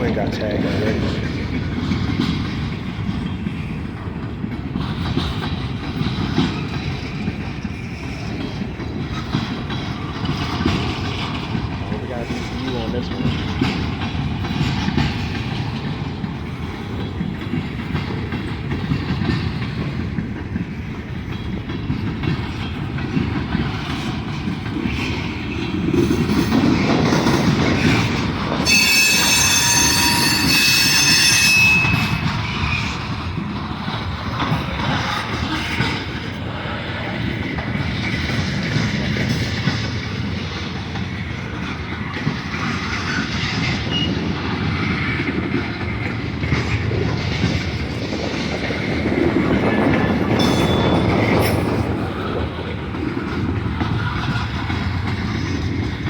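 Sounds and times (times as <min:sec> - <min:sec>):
train wheels rumbling on rail: 0:00.0 - 0:56.0
high-pitched wheel squeal: 0:28.6 - 0:32.3.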